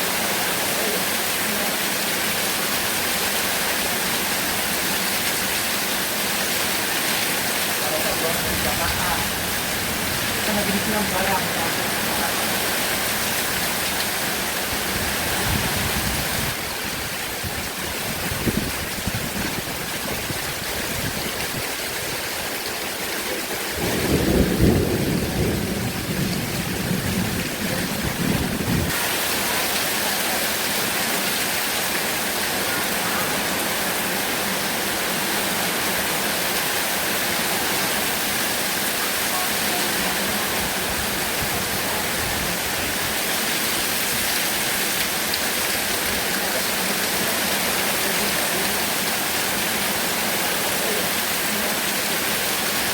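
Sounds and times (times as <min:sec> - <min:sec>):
heavy rain falling: 0:00.0 - 0:52.9
thunder rumbling: 0:23.7 - 0:29.1.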